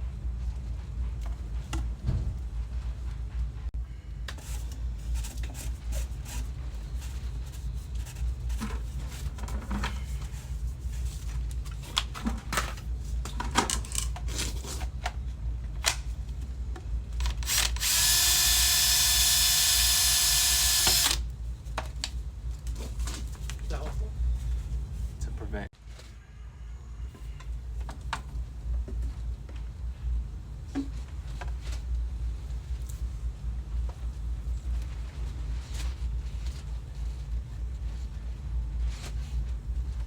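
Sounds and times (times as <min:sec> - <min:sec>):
power drill running: 0:17.4 - 0:21.2.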